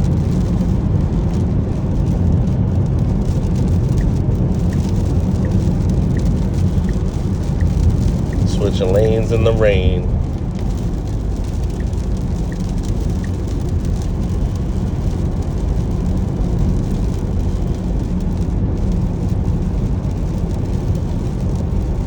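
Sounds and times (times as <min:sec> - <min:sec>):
rain on car: 0:00.0 - 0:22.0
tyre and road noise: 0:00.0 - 0:22.0
faint ticks: 0:03.2 - 0:09.5, 0:10.6 - 0:18.9.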